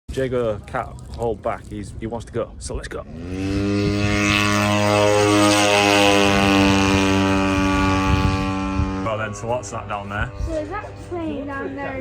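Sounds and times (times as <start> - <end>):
aircraft engine drone: 3.1 - 12.0.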